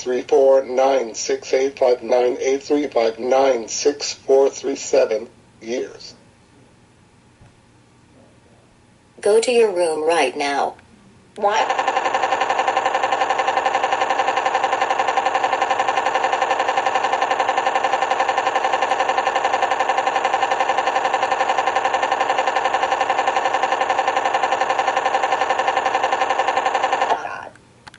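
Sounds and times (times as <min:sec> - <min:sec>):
rapidly pulsing buzzing tone: 0:00.0 - 0:06.2, 0:11.4 - 0:27.5.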